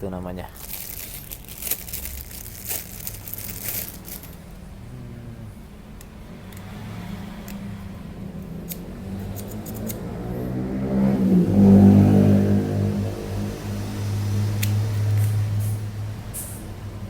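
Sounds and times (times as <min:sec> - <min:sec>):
vehicle engine humming: 0:00.0 - 0:17.0
plastic packaging clicks: 0:00.5 - 0:04.6.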